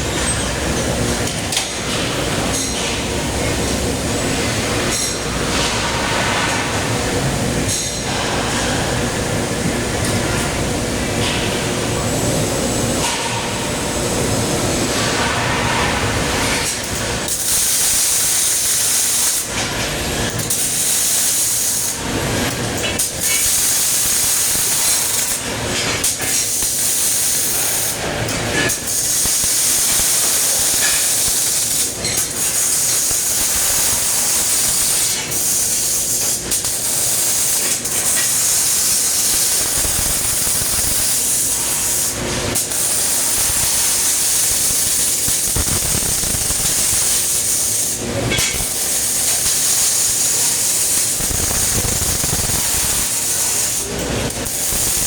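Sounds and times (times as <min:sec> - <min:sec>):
welding arc hissing and crackling: 0:16.0 - 0:19.6, 0:20.4 - 0:22.0, 0:23.0 - 0:25.5, 0:26.1 - 0:55.0.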